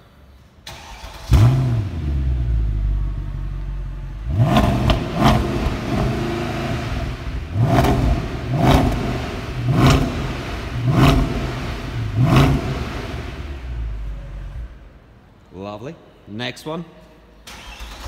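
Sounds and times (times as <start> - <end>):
car engine starting and idling: 0.6 - 15.1, 17.4 - 18.0
engine revving: 0.8 - 3.0, 4.2 - 14.6.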